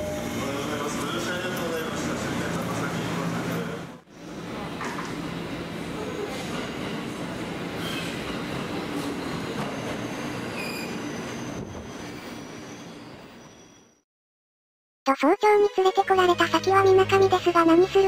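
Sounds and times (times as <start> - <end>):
high wheel squeal: 7.8 - 14.0.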